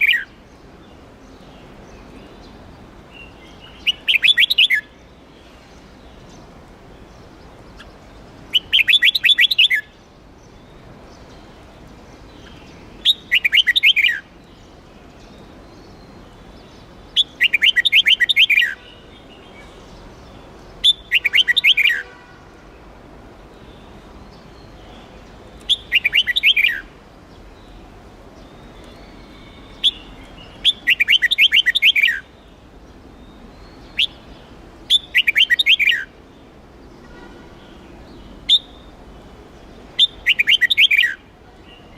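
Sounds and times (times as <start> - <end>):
bird whistled song phrases: 3.2 - 4.9, 8.5 - 9.9, 12.4 - 14.2, 17.2 - 19.0, 20.8 - 22.1, 25.7 - 26.9, 28.5 - 32.3, 33.6 - 34.2, 34.9 - 36.1, 38.5 - 38.9, 40.0 - 41.2.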